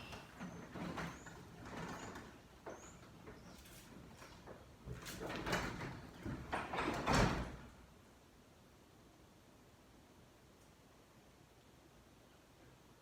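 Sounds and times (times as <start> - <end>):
garage door rollers rumbling and rattling: 0.0 - 7.8.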